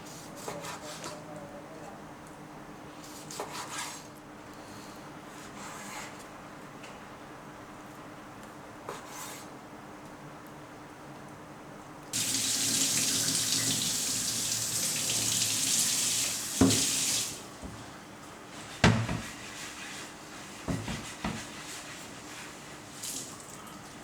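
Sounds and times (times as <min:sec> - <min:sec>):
kitchen tap running into sink: 0:12.2 - 0:17.7.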